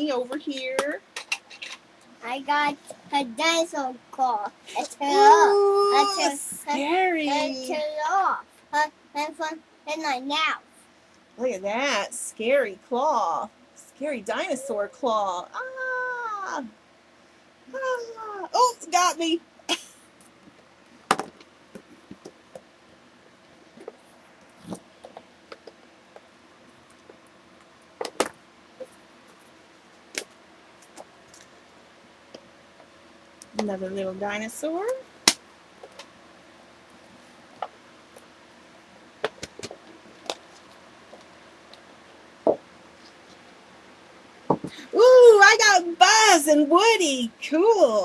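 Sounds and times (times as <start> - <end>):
plastic toys clicking and knocking: 0.5 - 1.8.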